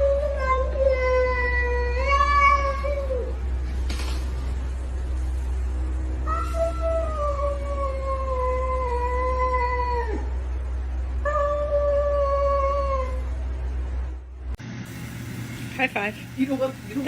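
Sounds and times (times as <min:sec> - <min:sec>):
cat yowling: 0:00.0 - 0:03.4
steady low hum: 0:00.0 - 0:17.0.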